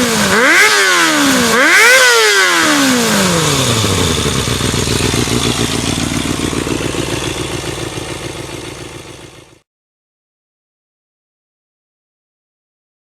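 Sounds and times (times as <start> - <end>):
motorcycle engine idling: 2.5 - 9.6.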